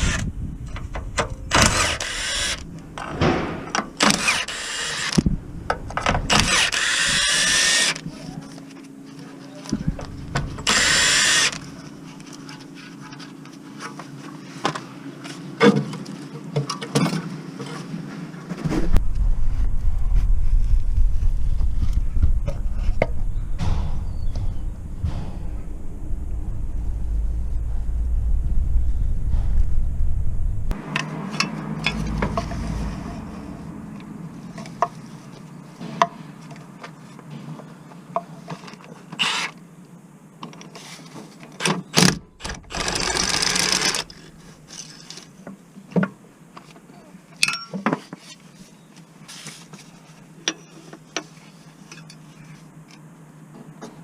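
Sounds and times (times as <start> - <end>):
low rumble: 5.2 - 6.4, 9.8 - 10.7, 18.7 - 30.9.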